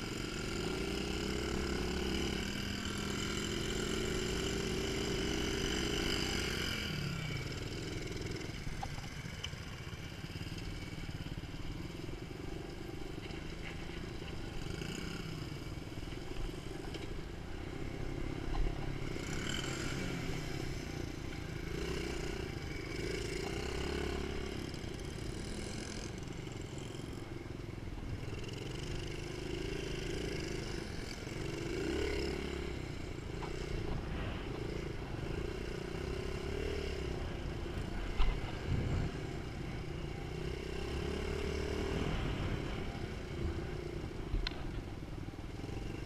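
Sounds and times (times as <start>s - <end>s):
dirt bike engine revving: 0.0s - 8.4s, 18.9s - 27.1s, 28.2s - 44.7s.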